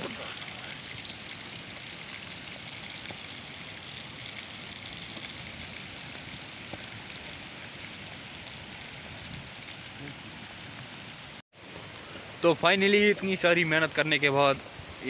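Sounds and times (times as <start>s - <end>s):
heavy rain falling: 0.0s - 1.0s, 4.5s - 12.0s.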